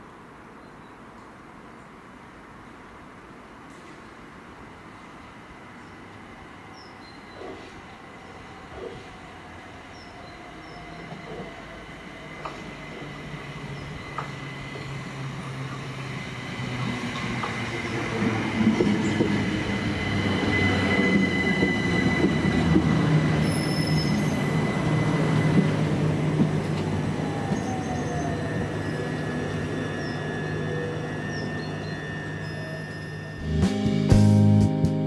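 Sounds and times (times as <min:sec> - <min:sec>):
train running on rails: 0:00.0 - 0:33.6
high whine: 0:27.2 - 0:33.8.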